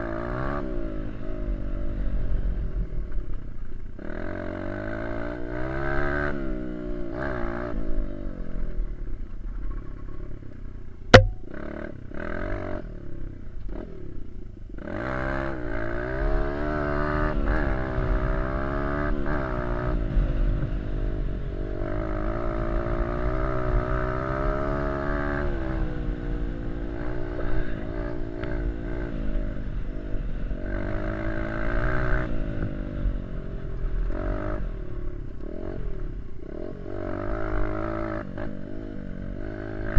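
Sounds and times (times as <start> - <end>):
sharp click: 11.2 - 11.4.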